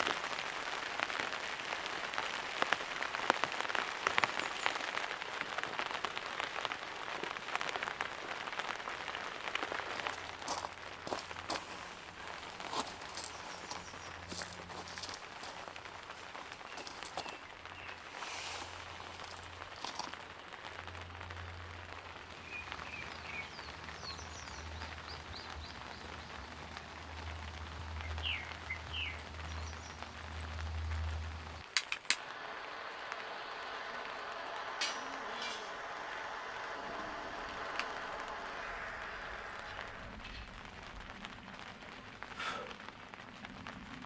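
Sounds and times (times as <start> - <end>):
steady rain: 0.0 - 44.0
low hum: 21.9 - 42.3
bird chirps: 22.1 - 31.6.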